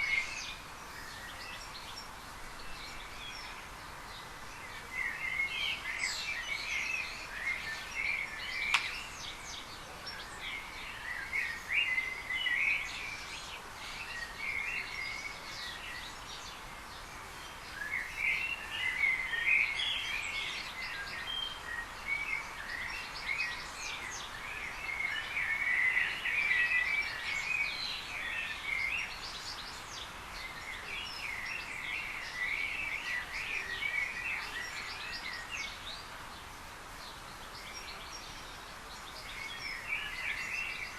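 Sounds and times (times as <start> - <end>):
faint background hiss: 0.0 - 40.9
small birds chirping: 0.0 - 40.9
sharp click: 8.7 - 9.0.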